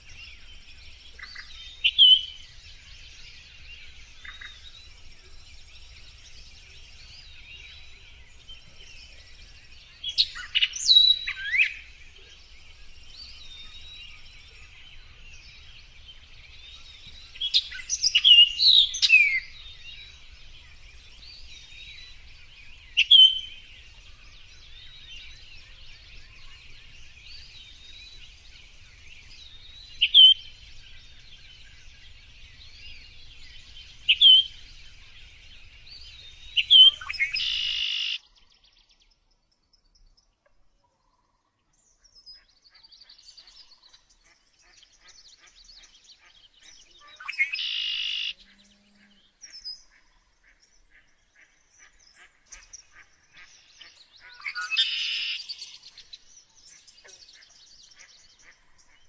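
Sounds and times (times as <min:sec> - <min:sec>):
songbirds chirping and twittering: 0:00.0 - 0:59.0
loud sharp bird call: 0:36.7 - 0:38.2, 0:47.0 - 0:48.4, 0:54.2 - 0:55.8.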